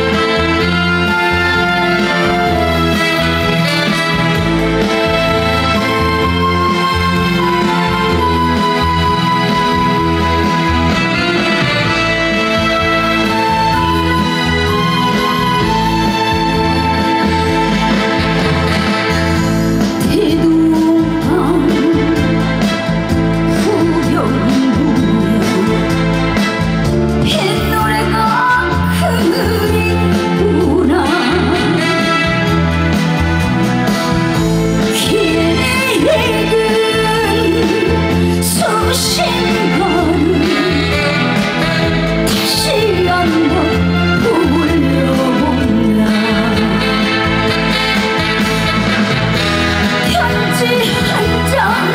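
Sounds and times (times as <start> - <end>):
band accompaniment: 0.0 - 51.9
woman singing with vibrato: 20.0 - 22.5, 23.4 - 26.0, 27.2 - 32.3, 34.8 - 41.6, 42.3 - 47.3, 50.0 - 51.9.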